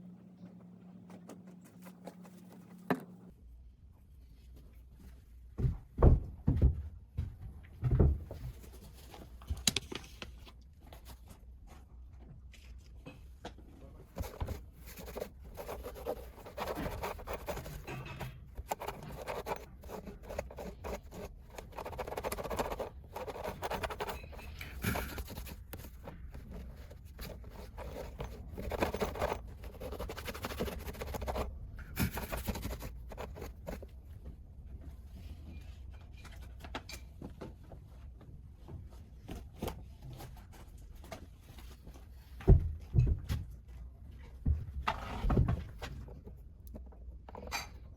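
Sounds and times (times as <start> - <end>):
low steady hum: 0.0 - 5.6, 7.2 - 44.9
scratching and scraping: 14.1 - 33.9.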